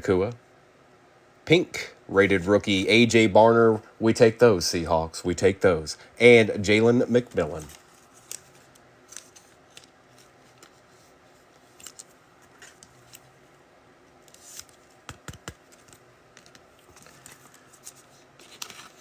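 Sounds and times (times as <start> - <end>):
trading cards being handled: 7.0 - 13.4, 14.1 - 19.0.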